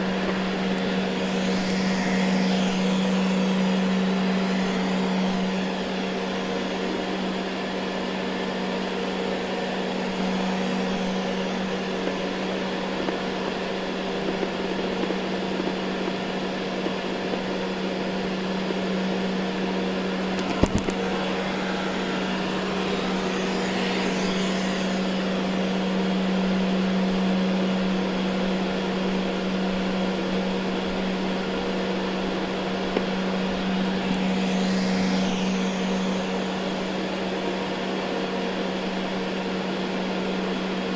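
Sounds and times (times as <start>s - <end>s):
robot vacuum motor hum: 0.0s - 40.9s.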